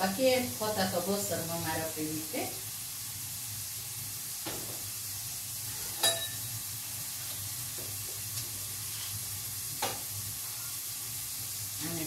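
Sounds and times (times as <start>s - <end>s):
food sizzling in a pan: 0.0s - 12.0s
utensil clinking on cookware: 5.9s - 6.5s.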